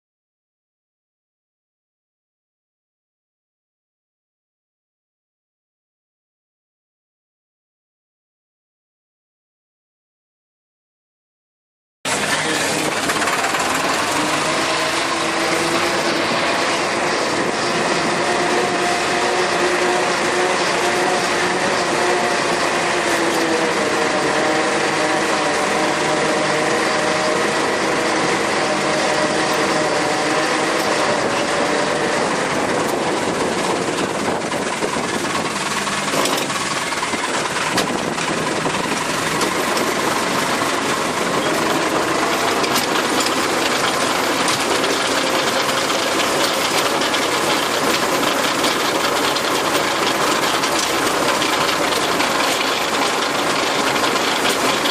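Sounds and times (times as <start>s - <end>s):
rotary tiller working soil: 12.1s - 54.9s
tractor engine running under load: 12.1s - 54.9s.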